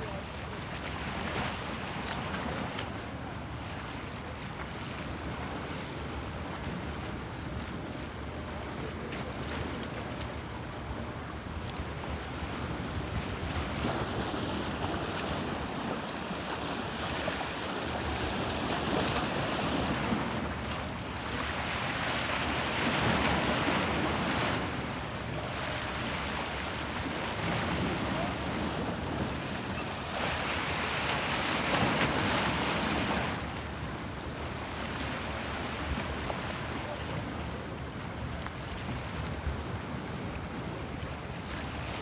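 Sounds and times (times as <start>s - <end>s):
sea waves breaking: 12.0s - 42.0s.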